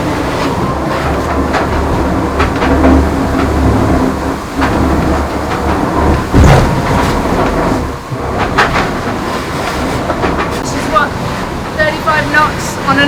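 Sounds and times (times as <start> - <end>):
yacht hull rumbling through water: 0.0 - 13.0
loud thump: 6.3 - 7.2.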